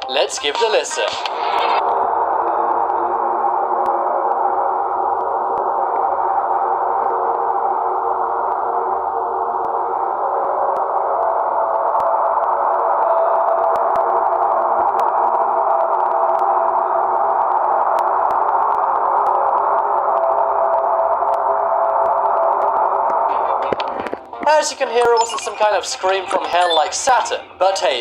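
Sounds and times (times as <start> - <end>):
held tones: 23.7 - 27.6.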